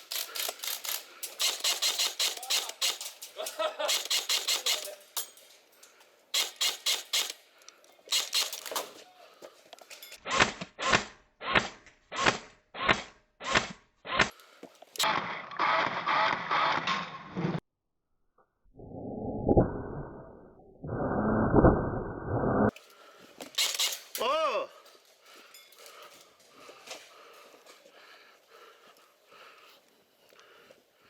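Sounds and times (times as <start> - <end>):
airsoft guns firing bursts: 0.0 - 3.2, 3.8 - 5.0, 6.4 - 7.4, 23.6 - 24.1.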